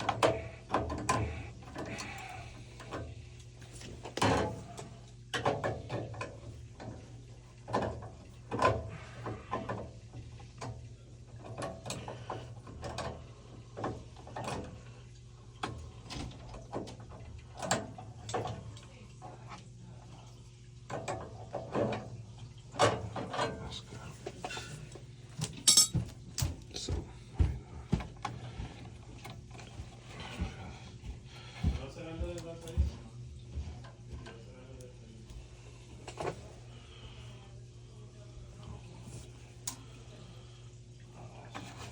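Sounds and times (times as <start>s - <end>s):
steady low hum: 18.0s - 41.9s
hand tools clanking on metal: 25.5s - 26.1s.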